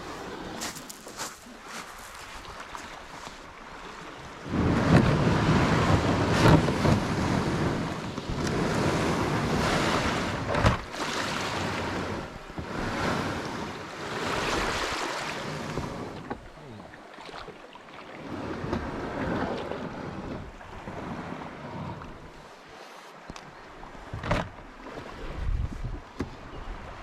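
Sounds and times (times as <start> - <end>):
sea water washing around kayak: 0.0 - 27.0
wind buffeting microphone: 4.3 - 16.8, 25.2 - 27.0.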